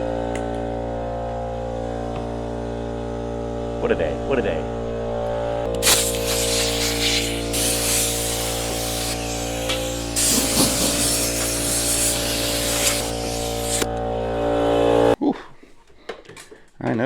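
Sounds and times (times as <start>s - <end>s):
compressed air hissing: 5.7s - 15.2s.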